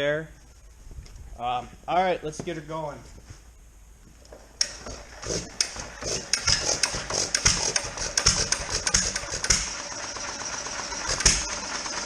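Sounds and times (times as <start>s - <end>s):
engine being hand-cranked: 4.6s - 12.0s
sharp engine knocks and clacks: 4.6s - 12.0s.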